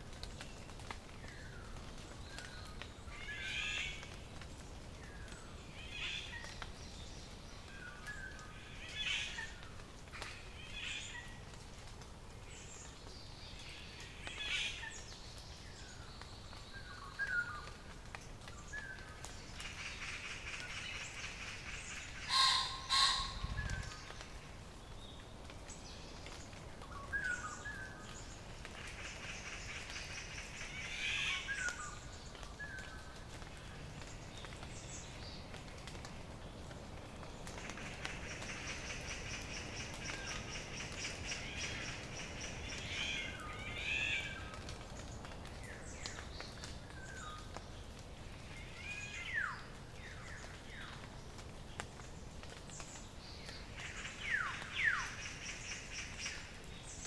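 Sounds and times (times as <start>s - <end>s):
wild birds calling: 19.6s - 24.6s, 37.5s - 44.6s.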